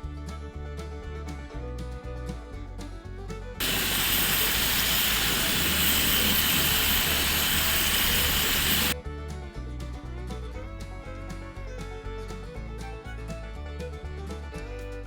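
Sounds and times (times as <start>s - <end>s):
country background music: 0.0s - 4.2s, 8.9s - 15.0s.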